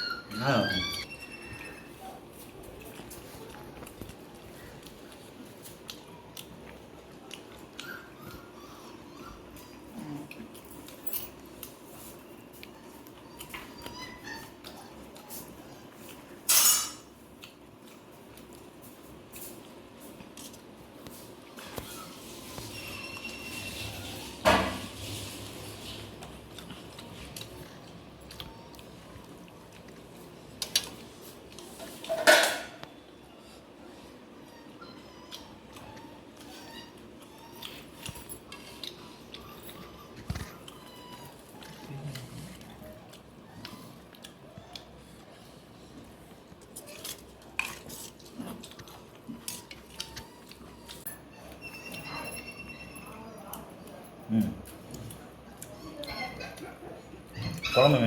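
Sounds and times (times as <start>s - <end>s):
dishes and utensils clinking: 16.4s - 17.1s, 31.8s - 32.8s.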